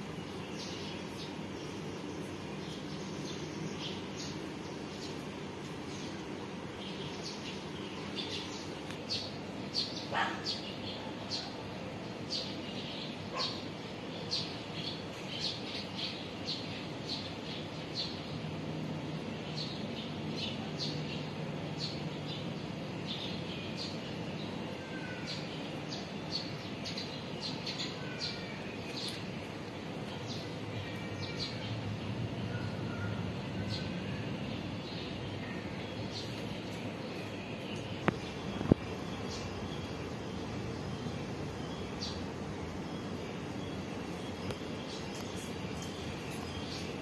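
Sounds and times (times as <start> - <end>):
birds chirping: 0.0 - 18.5, 19.3 - 47.0
steady background noise: 0.0 - 47.0.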